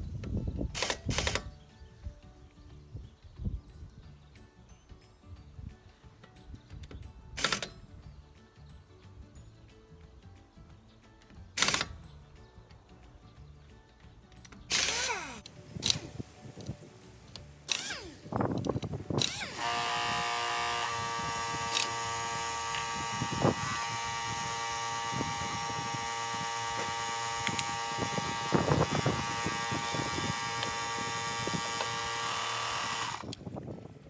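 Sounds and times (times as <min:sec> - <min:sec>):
power tool motor humming: 0:14.7 - 0:33.4.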